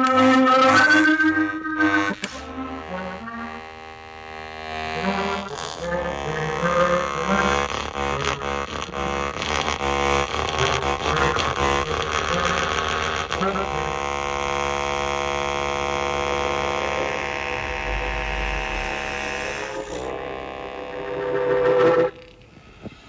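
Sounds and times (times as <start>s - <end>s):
harmonica with effects and reverb: 0.0s - 9.2s, 16.8s - 22.4s.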